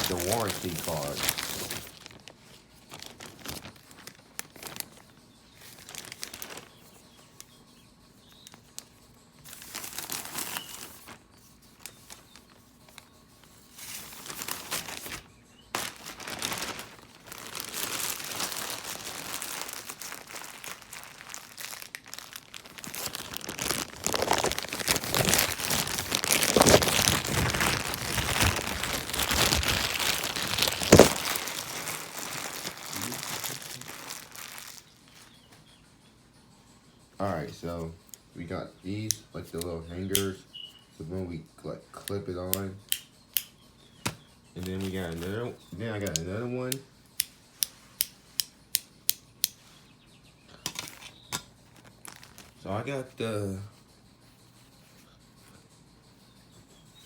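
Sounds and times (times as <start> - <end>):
packaging crinkling and rustling: 0.0 - 7.5, 8.3 - 35.4, 44.6 - 46.3, 50.7 - 52.6.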